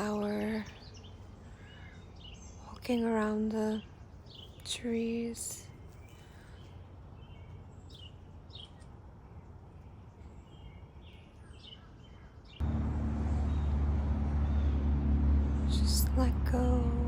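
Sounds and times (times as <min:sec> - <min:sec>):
steady low drone: 0:12.6 - 0:17.0.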